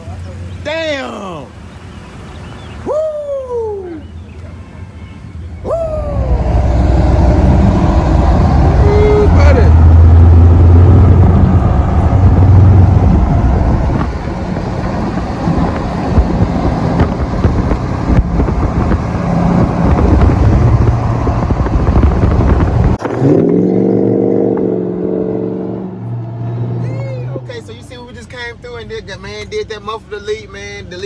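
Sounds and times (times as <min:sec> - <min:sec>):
higher pitched drone: 0:05.6 - 0:13.8
loud deep truck exhaust: 0:05.6 - 0:27.6.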